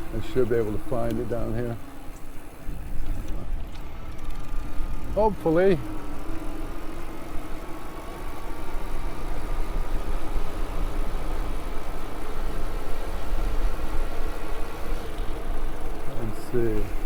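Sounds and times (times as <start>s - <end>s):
electric motor whine: 0.0s - 17.0s
wind rumble on microphone: 2.6s - 5.4s.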